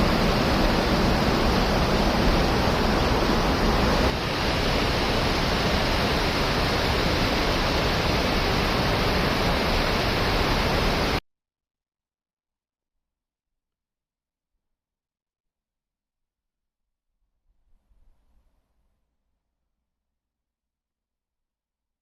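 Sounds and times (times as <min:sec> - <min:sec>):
river water rushing: 0:00.0 - 0:11.2.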